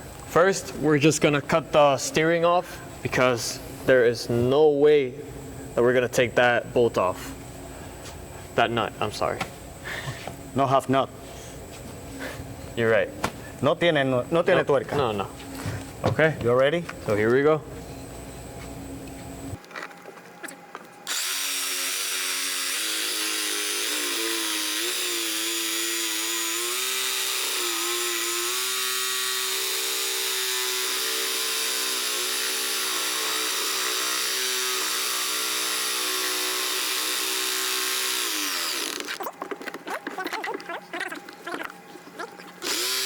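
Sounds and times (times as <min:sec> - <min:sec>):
power tool cutting metal: 0:21.1 - 0:39.2, 0:42.6 - 0:43.0.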